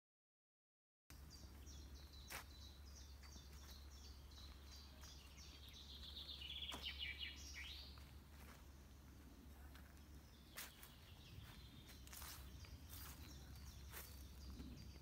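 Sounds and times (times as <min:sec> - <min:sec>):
songbird singing: 0:01.1 - 0:15.0.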